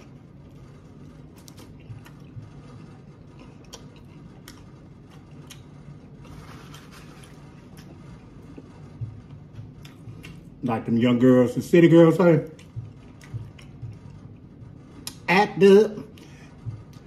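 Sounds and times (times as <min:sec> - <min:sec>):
person chewing food: 0:00.0 - 0:10.6, 0:12.4 - 0:15.3.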